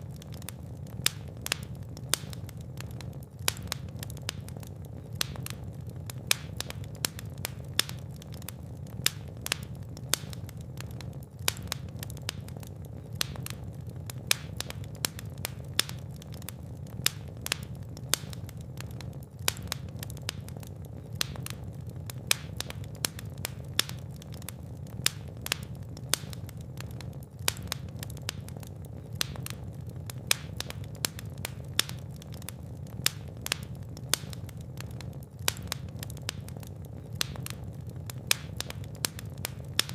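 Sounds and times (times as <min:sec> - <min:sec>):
fire crackling and popping: 0:00.0 - 0:39.9
low rumble of flame: 0:00.0 - 0:39.9.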